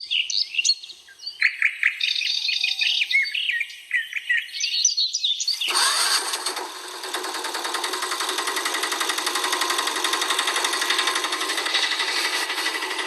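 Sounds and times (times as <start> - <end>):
birds chirping: 0.0 - 5.9
fast mechanical rattle: 5.6 - 13.0.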